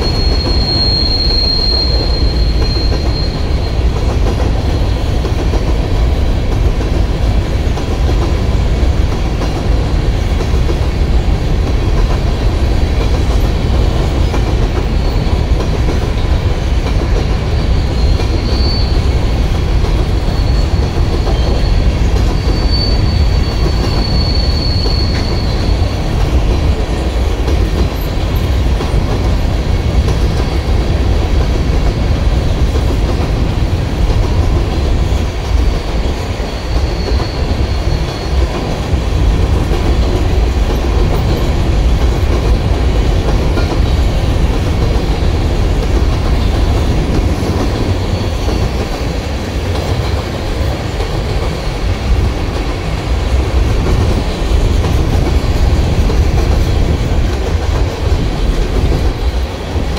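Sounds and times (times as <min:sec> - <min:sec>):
high wheel squeal: 0:00.0 - 0:04.0, 0:17.4 - 0:26.1, 0:36.2 - 0:38.7
freight train wheels rumbling: 0:00.0 - 0:59.9.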